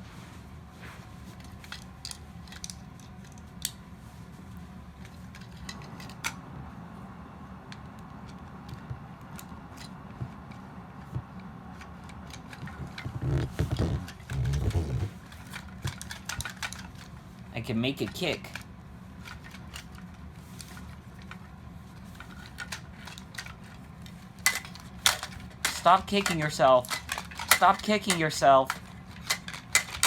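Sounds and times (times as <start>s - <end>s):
steady low hum: 0.0s - 30.0s
plastic toy parts clicking: 1.4s - 3.8s, 5.0s - 6.4s, 11.8s - 17.1s, 22.1s - 23.8s, 24.4s - 30.0s.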